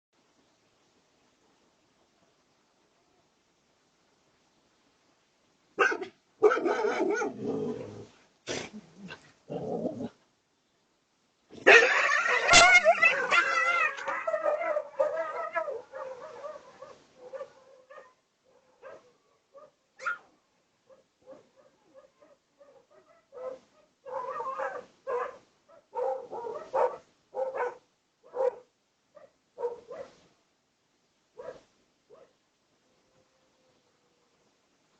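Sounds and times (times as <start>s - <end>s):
dog barking and growling: 5.8s - 10.2s, 11.5s - 20.3s, 20.9s - 30.2s, 31.4s - 32.4s.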